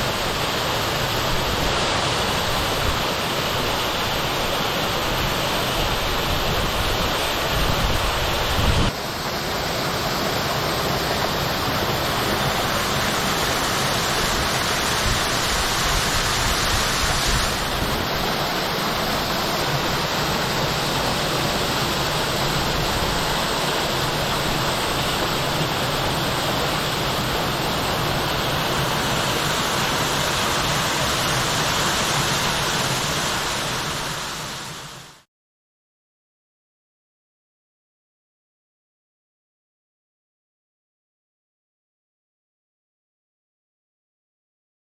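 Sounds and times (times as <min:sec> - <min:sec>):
waterfall rushing: 0:00.0 - 0:35.2.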